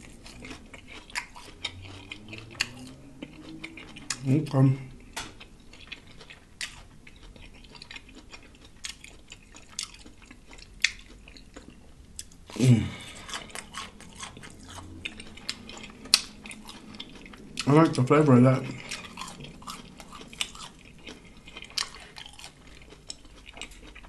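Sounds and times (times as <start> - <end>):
chewing crispy food: 0.0 - 24.0
person humming: 12.6 - 13.2.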